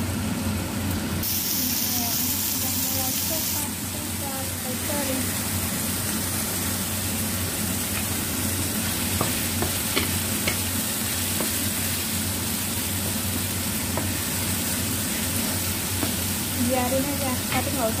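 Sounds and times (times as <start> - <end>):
chicken sizzling in a pan: 0.0 - 18.0.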